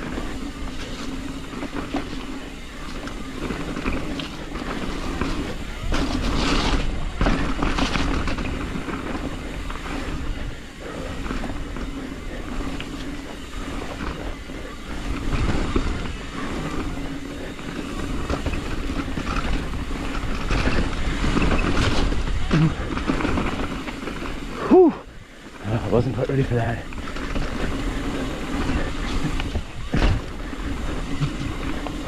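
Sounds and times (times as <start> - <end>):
bike rattling: 0.0 - 32.0
bike tyres rolling over dirt: 0.0 - 32.0.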